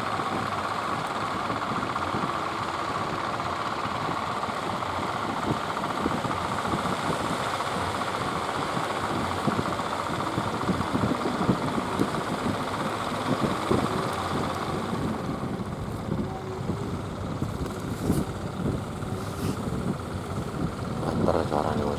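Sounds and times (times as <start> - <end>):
speedboat engine running: 0.0 - 21.9
wind gusting on microphone: 8.2 - 21.9.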